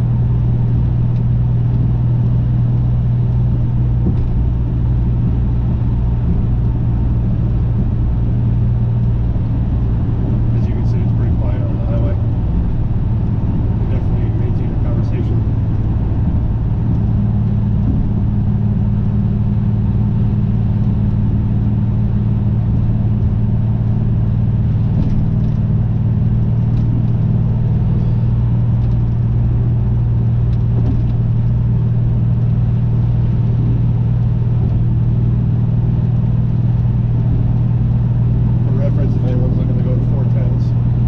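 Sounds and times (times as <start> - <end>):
truck engine droning: 0.0 - 41.0.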